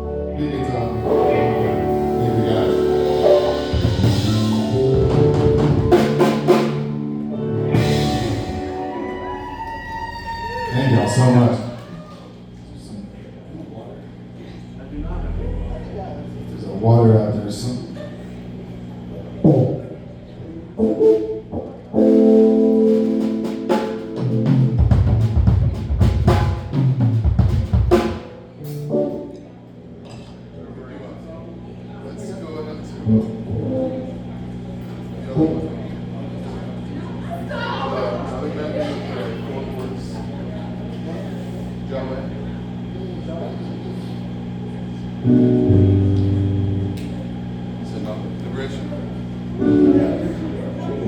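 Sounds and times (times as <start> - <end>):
held chords: 0.0 - 9.6, 14.7 - 17.0, 20.8 - 30.0, 45.2 - 47.6, 49.6 - 51.0
live band playing: 0.0 - 9.7, 20.8 - 29.5
drum hits: 3.1 - 7.0, 23.0 - 28.4.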